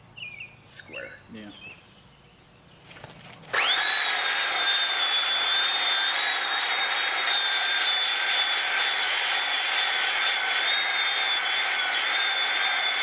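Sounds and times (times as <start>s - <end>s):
belt sander whining: 3.5s - 13.0s.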